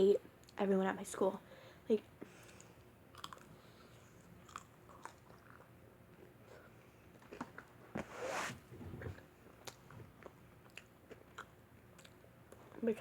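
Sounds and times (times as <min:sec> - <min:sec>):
person chewing pizza: 0:03.1 - 0:05.8, 0:08.8 - 0:12.8.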